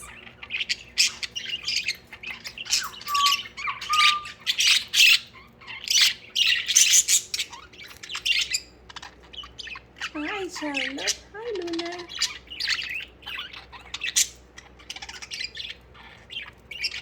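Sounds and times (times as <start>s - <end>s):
budgies chattering and squawking: 0.0s - 17.0s
short steady whistles: 2.8s - 4.4s.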